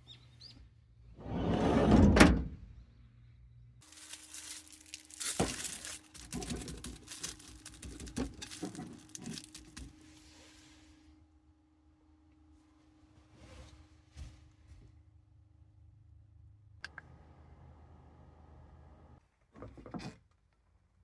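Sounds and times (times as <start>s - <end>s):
loud rustling: 3.8s - 9.9s
objects knocking and rattling: 3.8s - 10.0s.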